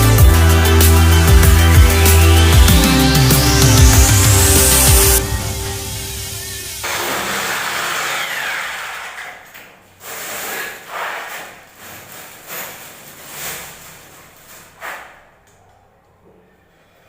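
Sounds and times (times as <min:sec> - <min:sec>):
power tool running: 0:02.7 - 0:09.3.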